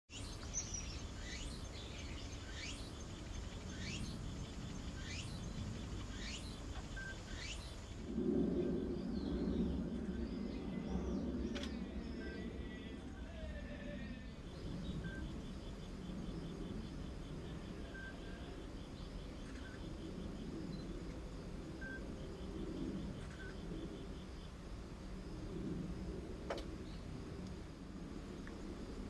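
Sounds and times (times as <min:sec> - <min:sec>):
bird whistled call: 0:00.1 - 0:03.0, 0:06.1 - 0:07.8
birds twittering faintly: 0:00.1 - 0:29.0
low outdoor hum: 0:00.1 - 0:29.0
low rumble: 0:00.2 - 0:29.0.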